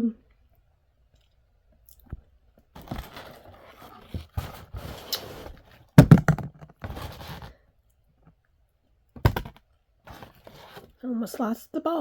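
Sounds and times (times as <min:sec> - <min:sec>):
food and packaging rustling: 0:02.7 - 0:07.6, 0:09.4 - 0:11.0
loud thump: 0:06.0 - 0:06.7.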